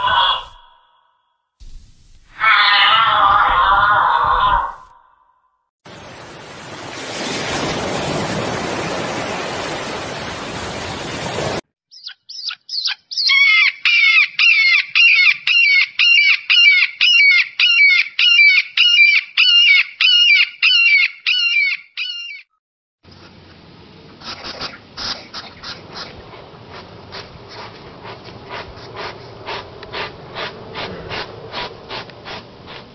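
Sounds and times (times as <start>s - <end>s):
hawk calling sharp cries: 11.9s - 22.4s.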